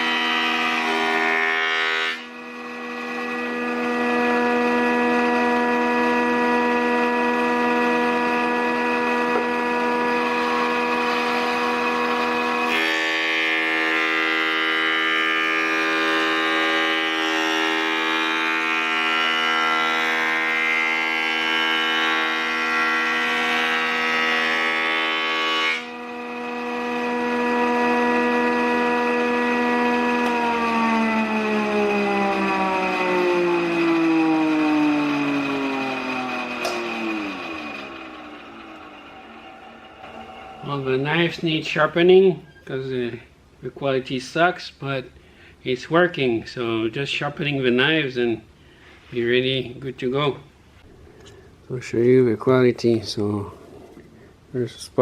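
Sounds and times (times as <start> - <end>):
planer whining: 0.0 - 42.8
cutterhead cutting wood: 19.1 - 41.6.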